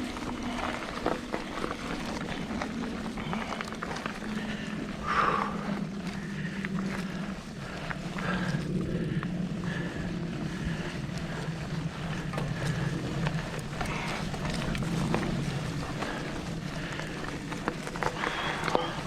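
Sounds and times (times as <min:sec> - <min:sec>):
bike clicks and knocks: 0:00.0 - 0:05.4, 0:10.6 - 0:19.0
bike tyre rumble on dirt: 0:00.0 - 0:19.0.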